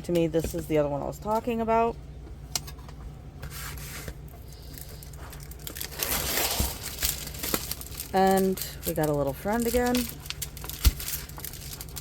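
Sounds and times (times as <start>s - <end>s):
plastic packaging rustling: 3.5s - 12.0s.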